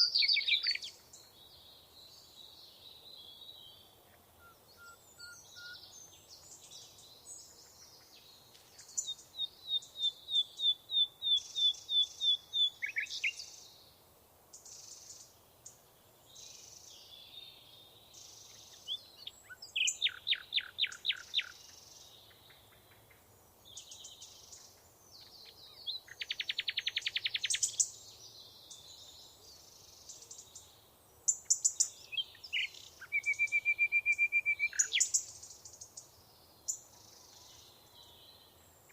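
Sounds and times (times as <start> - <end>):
soft bird twittering: 0.0 - 3.8, 4.4 - 13.8, 14.6 - 30.7, 31.3 - 38.9
songbirds singing: 0.0 - 38.9.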